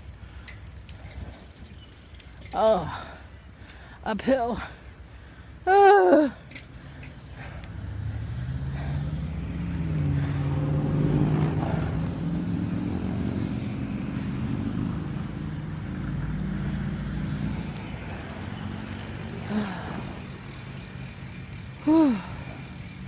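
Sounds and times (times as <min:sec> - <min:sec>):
vehicle engine running: 0:07.4 - 0:23.0.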